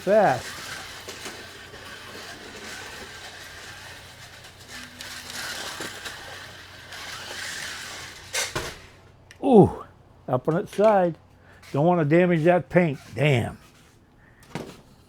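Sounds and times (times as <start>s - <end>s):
slot car clacking over: 0.0s - 9.0s
slot car motor whining: 0.0s - 9.8s.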